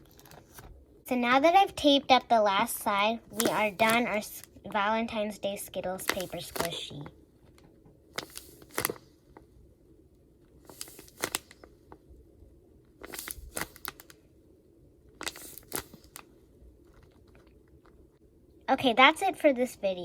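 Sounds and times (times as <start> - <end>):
paper crinkling: 3.3 - 4.3, 6.0 - 7.1, 8.2 - 9.4, 10.6 - 11.8, 13.0 - 14.2, 15.2 - 18.0.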